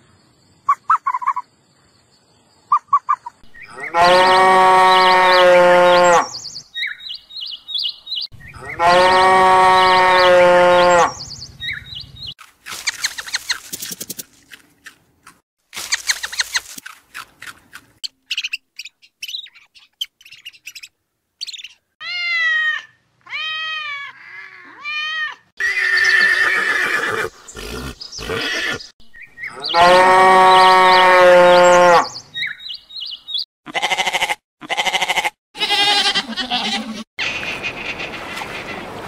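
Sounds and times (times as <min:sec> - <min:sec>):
cow mooing: 0:03.8 - 0:06.4, 0:08.6 - 0:11.1, 0:29.7 - 0:32.1.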